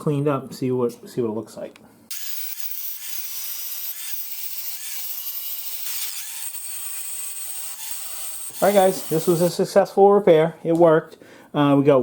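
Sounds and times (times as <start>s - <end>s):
angle grinder grinding metal: 2.1s - 9.6s.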